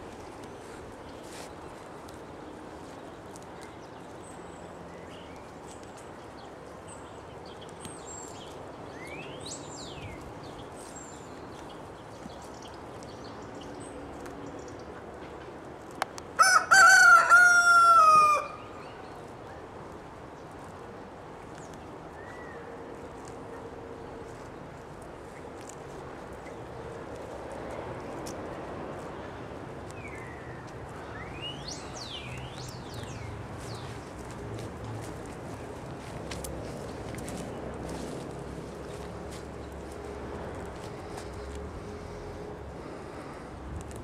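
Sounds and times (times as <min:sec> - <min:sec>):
small birds chirping: 0:00.0 - 0:15.2, 0:21.4 - 0:43.6
rooster crowing: 0:16.4 - 0:18.7.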